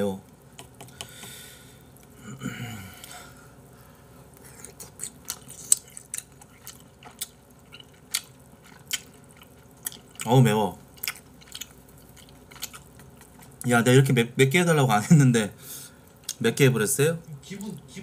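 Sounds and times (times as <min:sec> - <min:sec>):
wet chewing mouth clicks: 0:04.4 - 0:10.3, 0:11.0 - 0:13.6.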